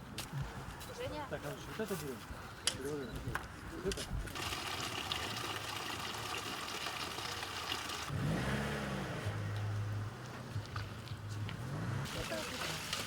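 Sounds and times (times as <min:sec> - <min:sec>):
vehicle engine running and revving: 0:08.1 - 0:12.6.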